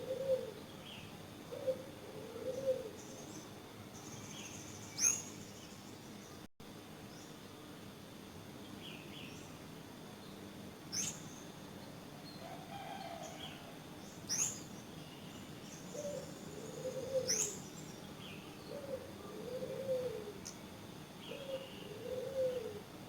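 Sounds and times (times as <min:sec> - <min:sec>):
low cooing calls: 0:00.0 - 0:00.7, 0:01.5 - 0:03.3, 0:15.9 - 0:17.8, 0:18.6 - 0:20.5, 0:21.2 - 0:23.0
faint higher bird chirps: 0:04.0 - 0:05.9, 0:10.9 - 0:11.6, 0:14.3 - 0:18.7
loud sharp high bird calls: 0:14.3 - 0:14.7, 0:15.9 - 0:17.8.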